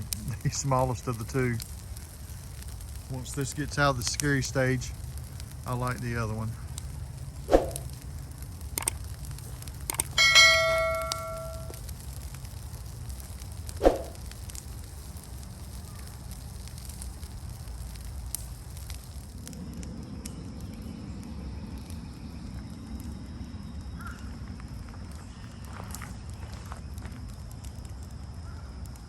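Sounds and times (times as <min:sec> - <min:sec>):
brush fire rumbling and popping: 0:00.0 - 0:29.0
metallic ring: 0:10.2 - 0:11.8.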